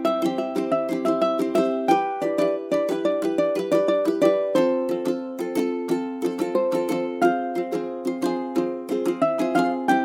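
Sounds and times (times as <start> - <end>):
plucked-string tune: 0.0 - 10.0.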